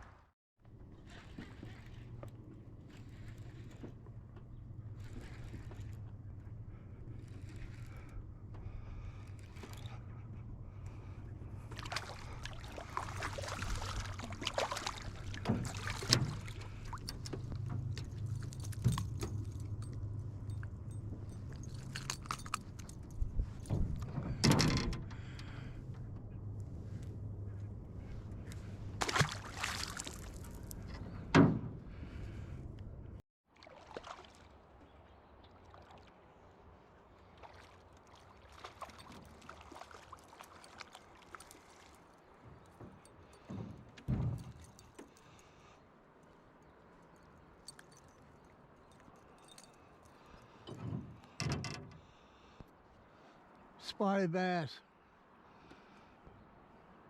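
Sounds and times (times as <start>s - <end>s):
boat motor hum: 0.7s - 33.2s.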